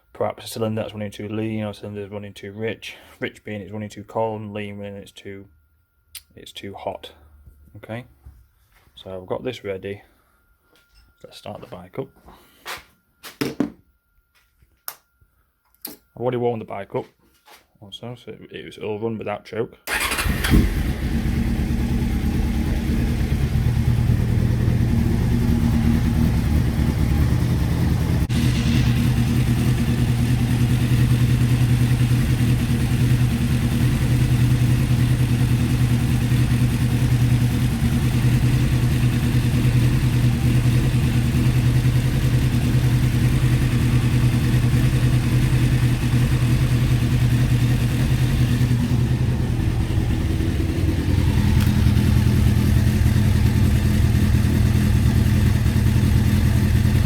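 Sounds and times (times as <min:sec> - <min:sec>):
faint click: 0:06.1 - 0:06.3
motorcycle engine idling: 0:19.9 - 0:57.0.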